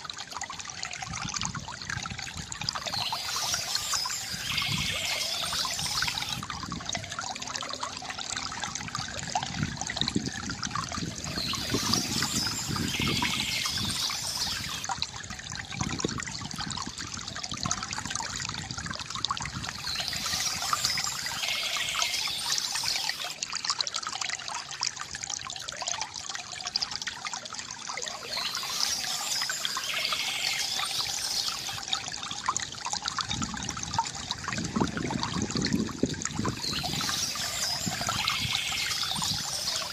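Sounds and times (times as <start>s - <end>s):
water trickling and gurgling: 0.0s - 39.9s
bird chirps: 2.9s - 6.4s, 11.3s - 14.8s, 19.8s - 23.4s, 28.1s - 31.9s, 36.6s - 39.9s.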